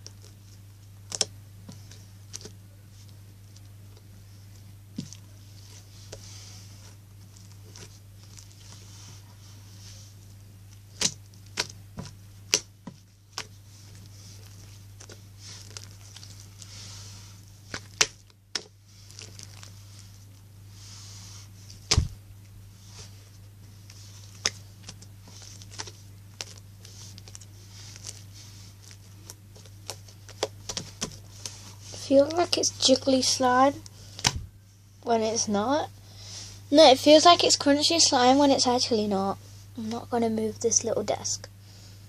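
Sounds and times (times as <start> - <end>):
slime squishing with clicks and pops: 1.1 - 1.3, 10.9 - 11.8, 17.7 - 19.6.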